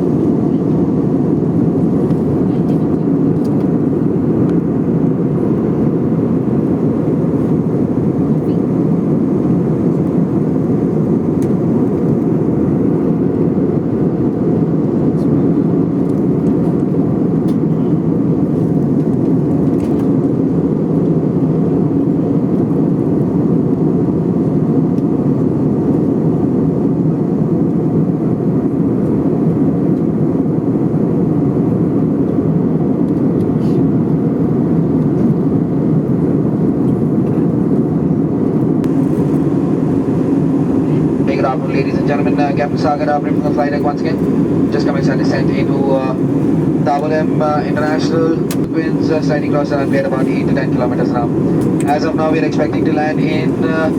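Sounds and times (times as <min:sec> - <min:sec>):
airliner engines and rushing air: 0:00.0 - 0:53.9.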